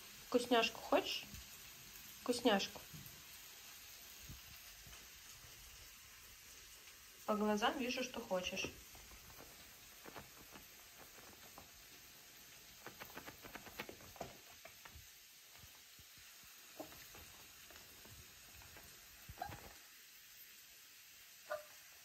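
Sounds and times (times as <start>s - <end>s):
vegetables sizzling in a pan: 0.0s - 22.0s
dog paws tapping: 6.9s - 19.9s.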